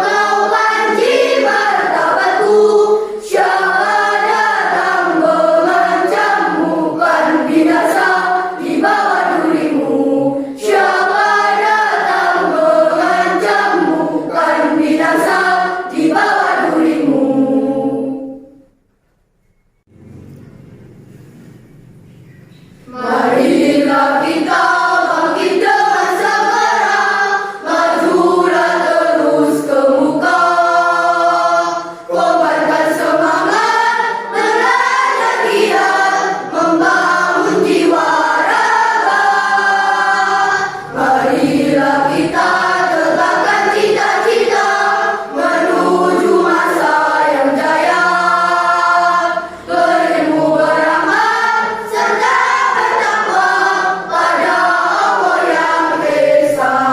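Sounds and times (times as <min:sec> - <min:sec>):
children's choir singing: 0:00.0 - 0:18.8, 0:22.9 - 0:56.9.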